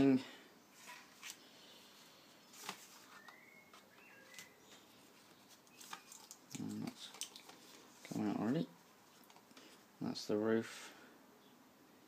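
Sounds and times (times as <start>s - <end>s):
card sheets rustling and tapping: 2.5s - 8.2s.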